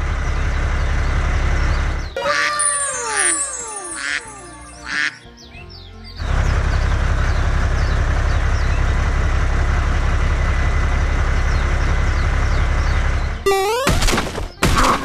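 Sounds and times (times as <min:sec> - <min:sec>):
small tractor engine running: 0:00.0 - 0:02.2, 0:06.2 - 0:14.1.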